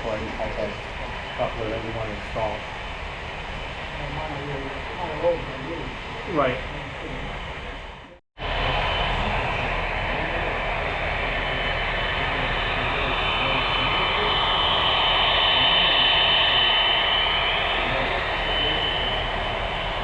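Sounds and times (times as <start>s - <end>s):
model train whirring: 8.4s - 20.0s.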